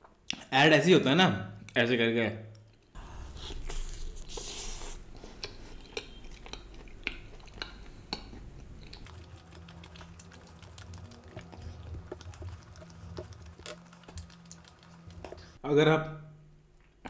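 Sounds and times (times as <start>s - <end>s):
chewing with mouth clicks: 2.5s - 15.6s.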